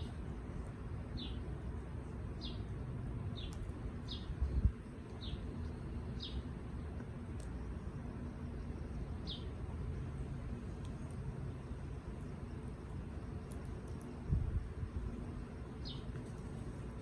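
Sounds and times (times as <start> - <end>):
steady low rumble: 0.0 - 17.0
bird chirping: 1.1 - 1.5, 2.4 - 2.7, 3.3 - 6.5, 8.5 - 9.6, 15.8 - 16.2.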